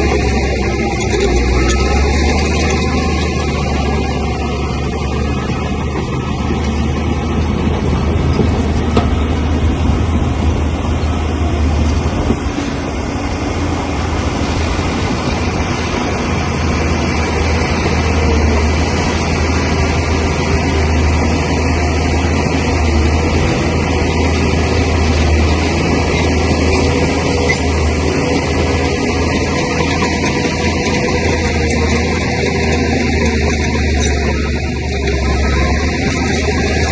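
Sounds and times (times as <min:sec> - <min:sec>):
bulldozer diesel engine running: 0:00.0 - 0:36.9.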